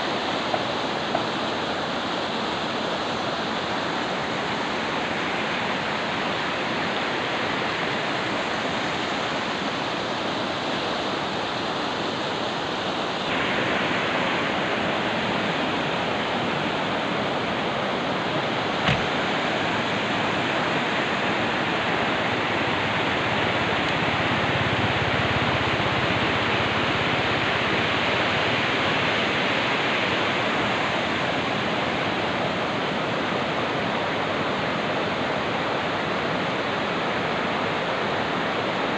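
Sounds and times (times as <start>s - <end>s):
rushing river water: 0.0s - 38.9s.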